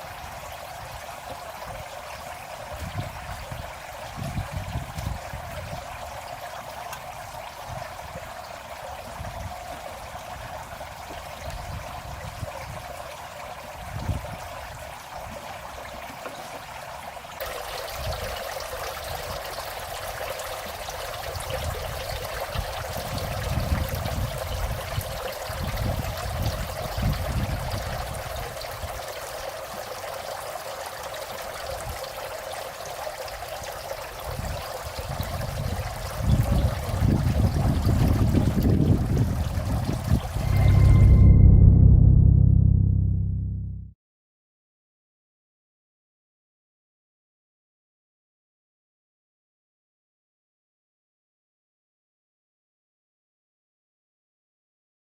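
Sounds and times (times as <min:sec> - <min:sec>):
water trickling: 0:00.0 - 0:41.1
low rumbles: 0:40.0 - 0:44.0.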